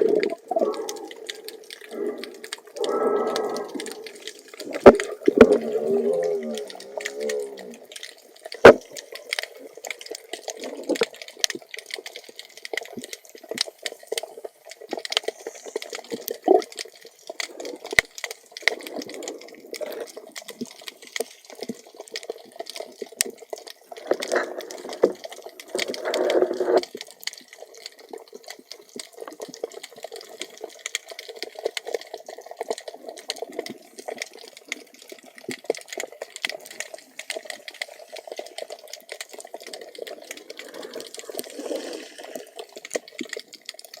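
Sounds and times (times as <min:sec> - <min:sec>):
gurgling and rushing water: 0:00.0 - 0:21.7, 0:36.6 - 0:44.0
crackle of sharp clicks underwater: 0:00.0 - 0:44.0
murmur of moving water: 0:00.0 - 0:44.0.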